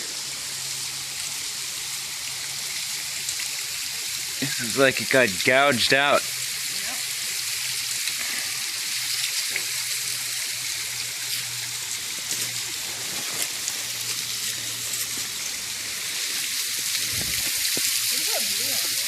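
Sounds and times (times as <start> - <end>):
water falling over rock: 10.9 - 19.0.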